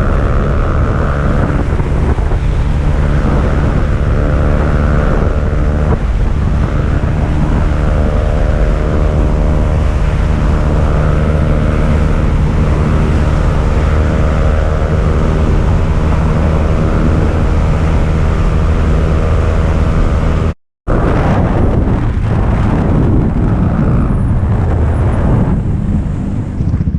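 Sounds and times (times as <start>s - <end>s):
motorcycle engine running: 0.0s - 26.9s
wind on microphone: 0.0s - 26.9s.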